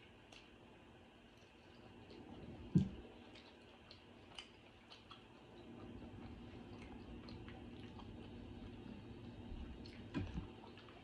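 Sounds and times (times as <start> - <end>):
chewing clicks and smacks: 0.2 - 0.6, 1.3 - 9.0, 9.7 - 11.0.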